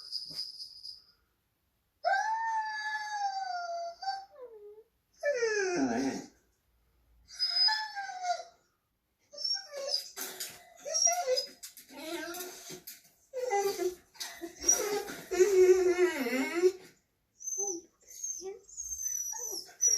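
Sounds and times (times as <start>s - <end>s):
dog whining and howling: 2.0s - 6.4s, 7.3s - 8.7s, 9.3s - 10.2s, 10.8s - 19.9s.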